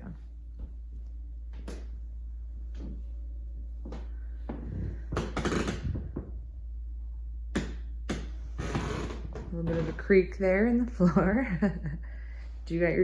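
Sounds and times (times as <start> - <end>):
footsteps on a floor: 2.7 - 3.1, 3.8 - 5.3
floor creaking: 3.8 - 6.6, 8.1 - 10.8.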